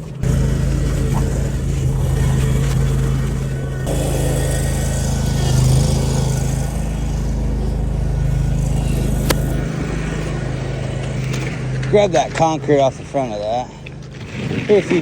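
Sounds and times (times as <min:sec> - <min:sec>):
engine running steadily: 0:00.0 - 0:15.0
sharp click: 0:09.2 - 0:09.6.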